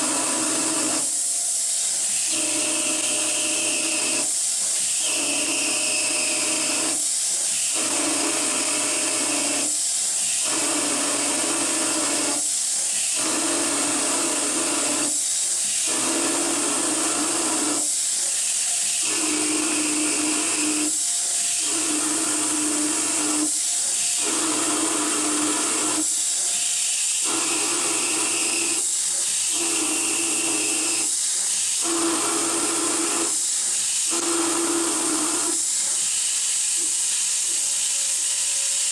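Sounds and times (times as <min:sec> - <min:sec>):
cnc mill machining hiss: 0:00.0 - 0:38.9.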